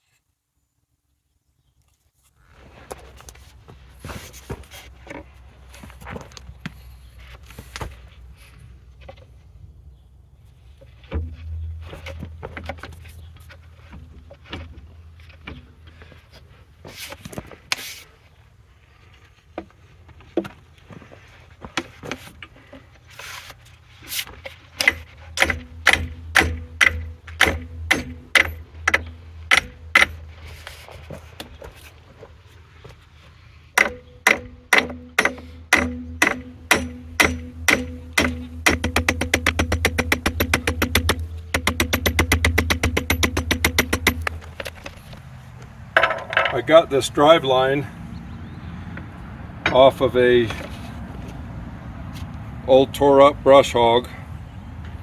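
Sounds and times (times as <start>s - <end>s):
low hum: 10.8s - 15.8s, 24.8s - 30.7s
hammer striking steel: 11.1s - 12.9s, 24.8s - 30.2s, 33.8s - 44.9s.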